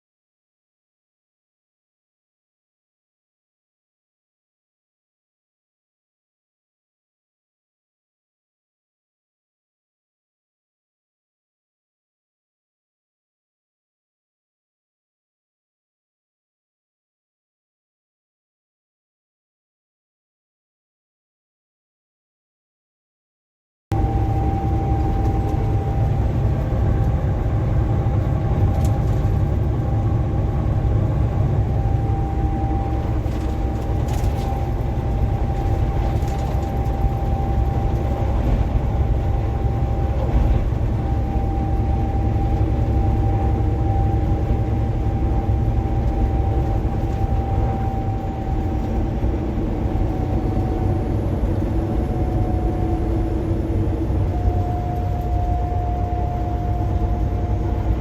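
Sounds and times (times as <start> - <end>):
high whine: 23.9 - 58.0
road and engine rumble: 23.9 - 58.0.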